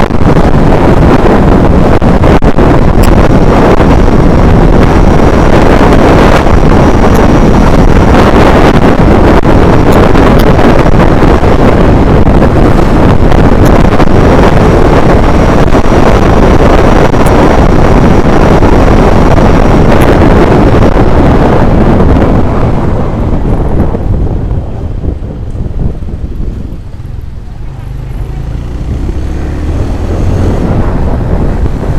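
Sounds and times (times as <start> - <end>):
heavy wind buffeting microphone: 0.0 - 31.9.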